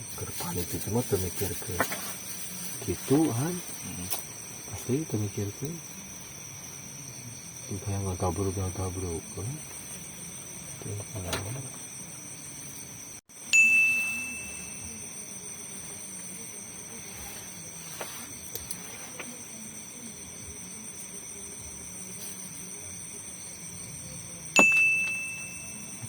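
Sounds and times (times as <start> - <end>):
night insects chirring: 0.0 - 26.0
bell-like ding: 13.5 - 15.2, 24.6 - 26.0.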